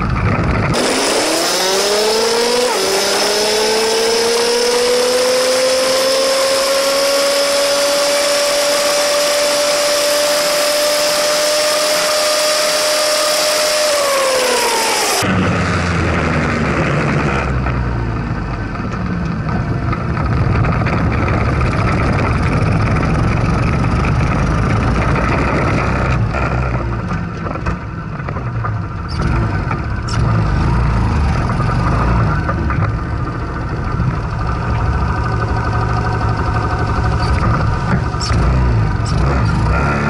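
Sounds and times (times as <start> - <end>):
minibike engine revving: 0.0 - 17.8, 29.1 - 40.0.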